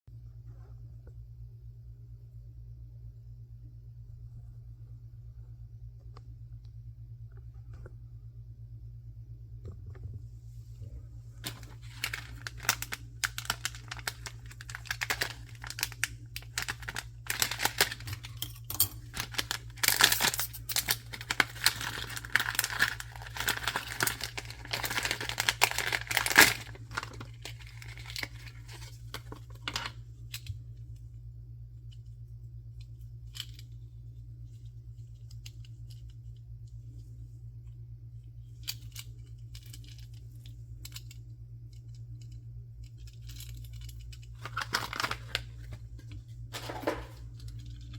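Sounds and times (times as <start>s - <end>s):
packaging crinkling and tearing: 11.4s - 30.0s, 43.7s - 47.9s.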